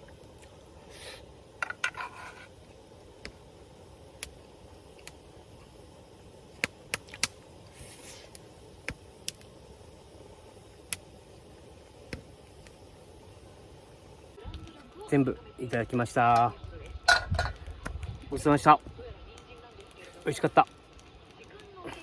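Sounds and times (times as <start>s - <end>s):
utensil scraping a pot: 0.9s - 2.6s.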